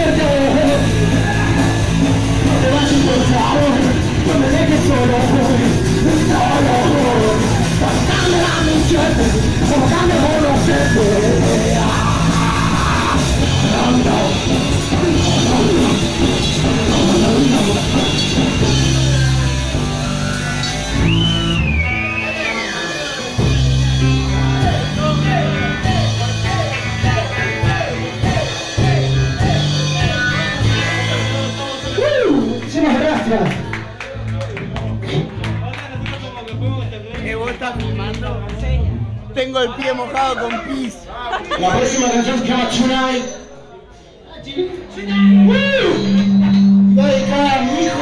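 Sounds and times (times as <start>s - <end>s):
person singing and shouting: 0.0s - 20.7s, 22.3s - 32.8s
live punk rock band: 0.0s - 39.2s.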